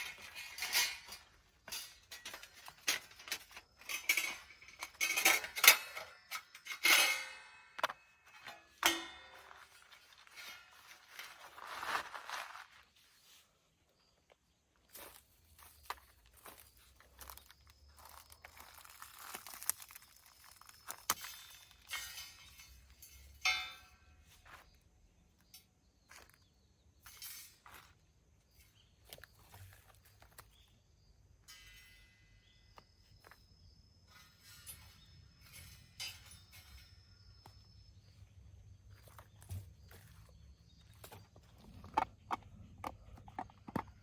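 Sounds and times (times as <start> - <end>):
rustling: 9.4 - 13.6.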